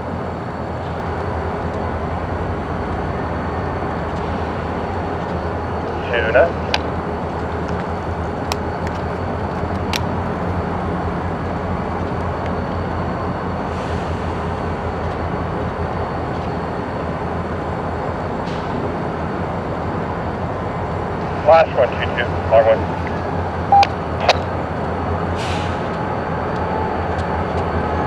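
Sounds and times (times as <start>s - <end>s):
diesel locomotive droning: 0.0s - 28.0s
short sharp clicks: 23.8s - 24.5s.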